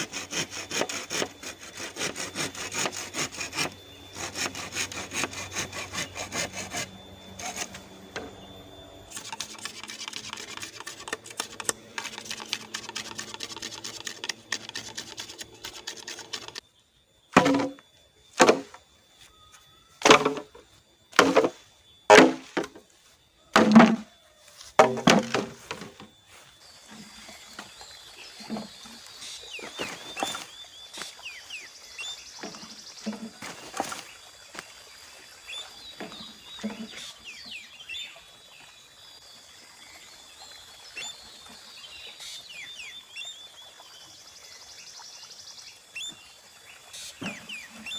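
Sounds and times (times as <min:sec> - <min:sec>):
hand saw cutting bamboo: 0:00.0 - 0:07.9, 0:09.1 - 0:16.6, 0:28.4 - 0:30.4.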